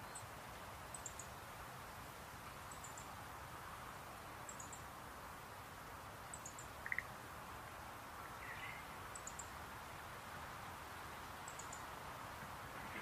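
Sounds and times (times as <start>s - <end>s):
soft hiss: 0.0s - 13.0s
faint high chirps: 4.4s - 4.8s, 6.3s - 7.1s, 8.3s - 9.6s, 11.4s - 11.9s
frog rattling croak: 6.4s - 7.1s.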